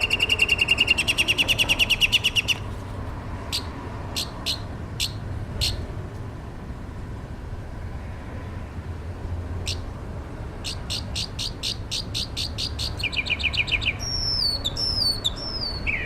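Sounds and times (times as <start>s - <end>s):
songbird trilling: 0.0s - 2.7s, 3.5s - 5.9s, 10.6s - 16.0s.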